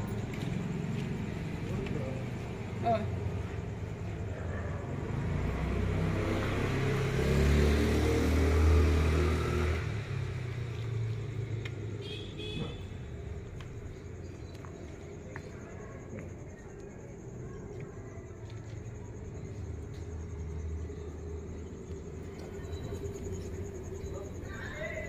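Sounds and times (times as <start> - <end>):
vehicle engine passing by: 4.2 - 12.0.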